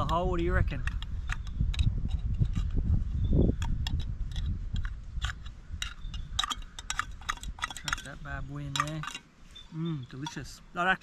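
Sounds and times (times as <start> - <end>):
utensil clicks: 3.6 - 9.2.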